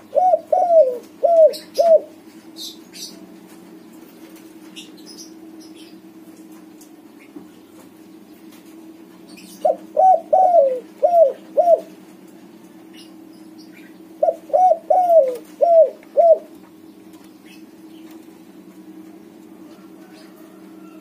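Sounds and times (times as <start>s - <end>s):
dove cooing: 0.0s - 3.2s, 9.4s - 12.0s, 13.0s - 16.8s, 18.8s - 21.0s
steady low hum: 0.0s - 21.0s.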